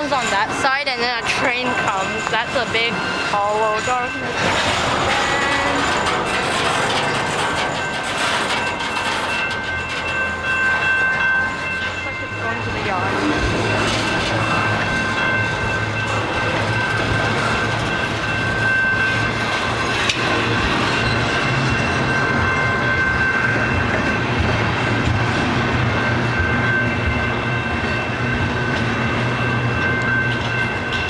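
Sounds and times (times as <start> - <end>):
freight train clattering over rails: 0.0 - 31.0.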